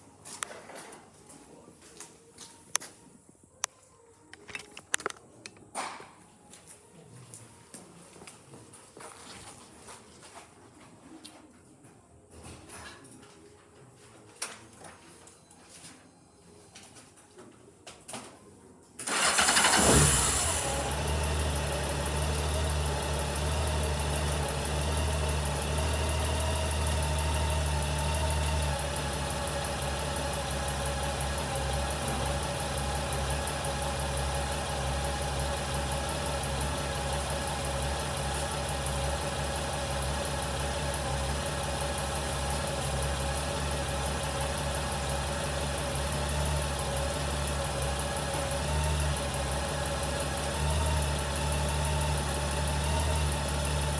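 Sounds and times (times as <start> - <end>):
motorcycle engine starting and idling: 19.0 - 53.9.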